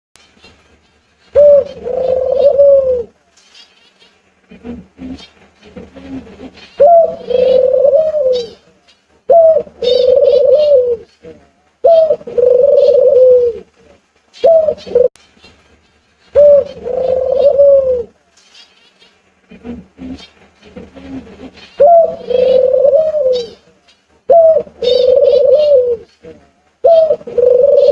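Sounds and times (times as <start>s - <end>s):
dove cooing: 1.4s - 3.1s, 4.5s - 8.6s, 9.3s - 13.7s, 14.4s - 15.1s, 16.4s - 18.2s, 19.5s - 23.7s, 24.3s - 27.9s.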